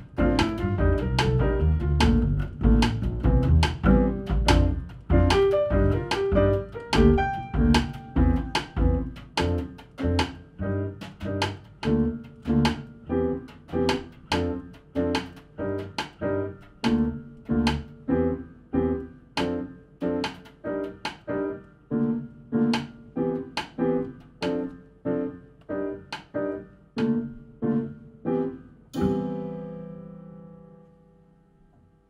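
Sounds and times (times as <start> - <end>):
double bass: 0.0 - 16.0
drums: 0.0 - 25.0, 26.0 - 27.9, 29.0 - 30.1
piano: 0.0 - 32.0.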